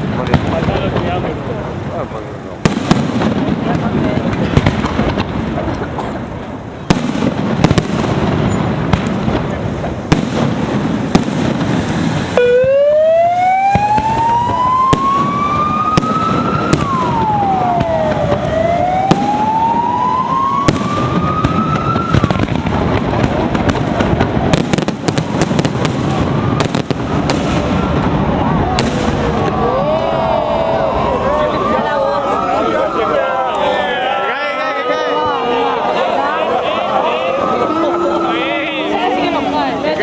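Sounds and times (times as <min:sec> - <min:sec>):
fireworks bursting with sharp bangs: 0:00.0 - 0:29.9
siren wailing: 0:12.4 - 0:22.6, 0:26.2 - 0:39.6.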